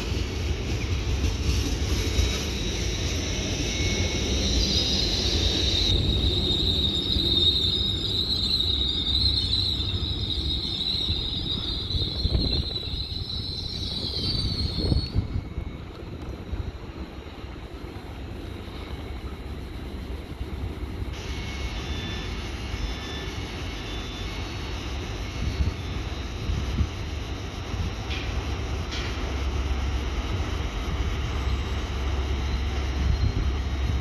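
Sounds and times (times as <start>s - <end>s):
train rumbling: 0.0s - 34.0s
high-pitched squeal: 0.8s - 15.8s.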